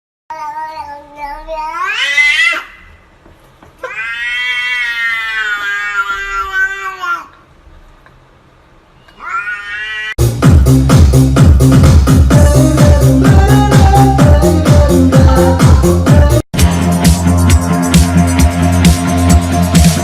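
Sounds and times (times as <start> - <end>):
cat meowing: 3.8 - 7.4, 9.0 - 10.2
electronic dance music: 10.2 - 20.0.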